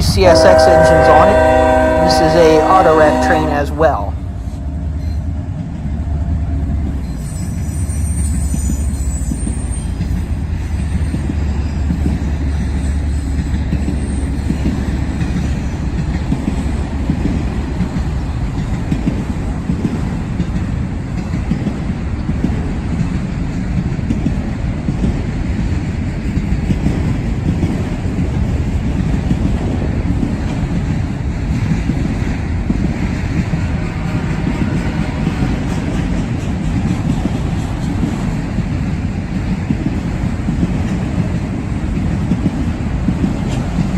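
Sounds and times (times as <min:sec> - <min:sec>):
train wheels rumbling: 0:00.0 - 0:43.9
thin high squeal: 0:07.0 - 0:09.9.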